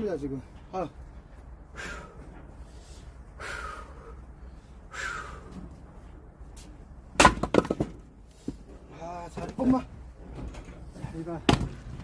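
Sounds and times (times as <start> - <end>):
man breathing hard: 1.2 - 6.2.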